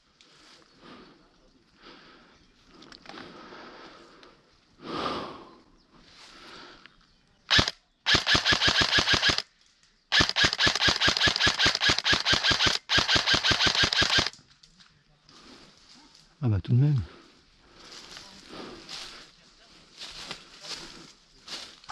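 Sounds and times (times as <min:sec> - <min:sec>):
airsoft rifle firing bursts: 0:07.5 - 0:09.4, 0:10.1 - 0:14.3
rustle of movement: 0:17.4 - 0:21.9.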